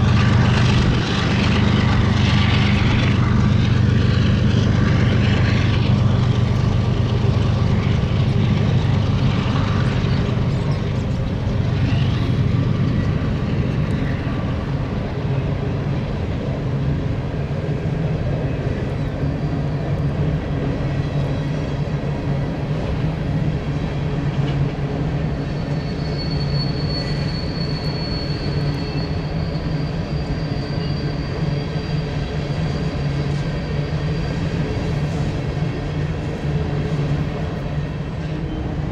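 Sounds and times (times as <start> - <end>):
diesel locomotive drone: 0.0 - 38.9
thin high squeal: 25.4 - 34.5.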